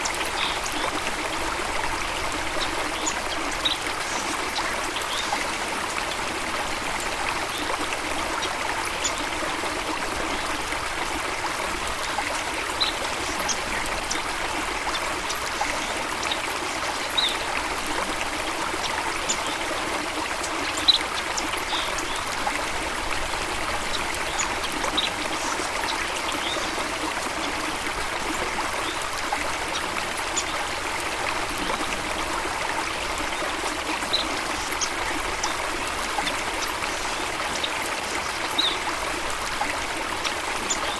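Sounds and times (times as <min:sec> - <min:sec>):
stream water trickling: 0:00.0 - 0:40.9.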